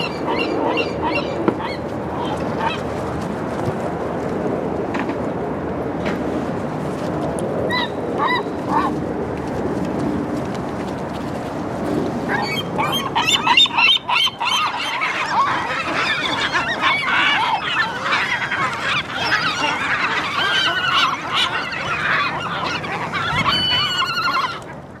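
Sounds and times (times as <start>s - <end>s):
gulls calling: 12.3s - 25.0s.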